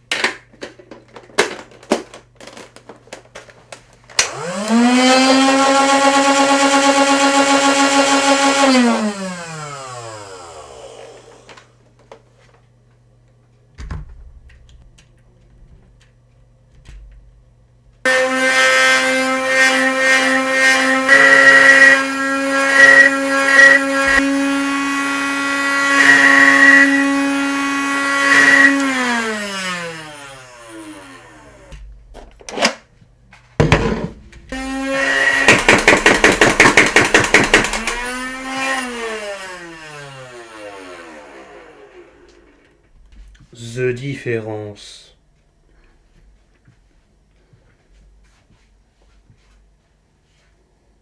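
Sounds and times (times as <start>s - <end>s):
toy blaster flywheel motors whining: 28.2s - 31.7s, 34.5s - 42.6s.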